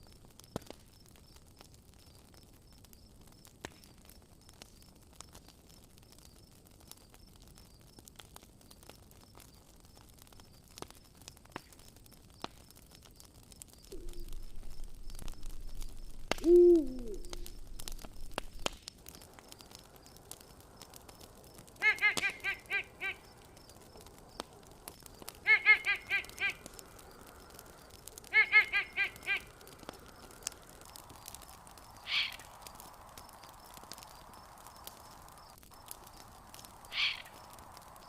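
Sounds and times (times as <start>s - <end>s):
campfire crackling: 0.0s - 38.0s
animal calls: 13.9s - 18.6s, 21.8s - 24.6s, 25.2s - 27.2s, 28.0s - 30.8s, 32.0s - 32.6s, 36.8s - 37.6s.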